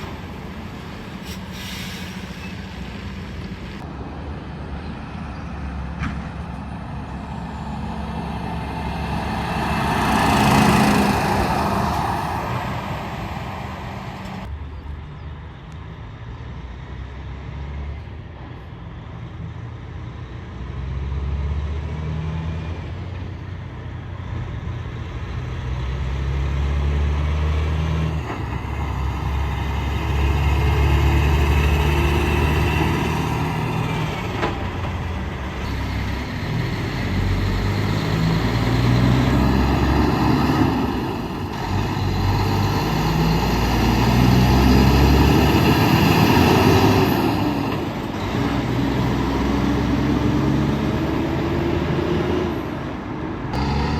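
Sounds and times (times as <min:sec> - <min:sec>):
heavy trucks passing: 0:00.0 - 0:53.9
truck diesel engine revving: 0:05.6 - 0:14.5, 0:24.4 - 0:53.9.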